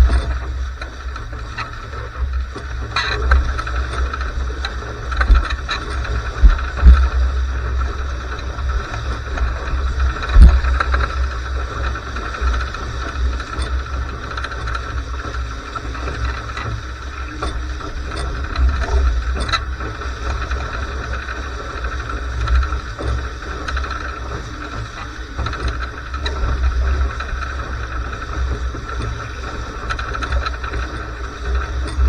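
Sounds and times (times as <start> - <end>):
strong wind buffeting microphone: 2.4 - 12.2.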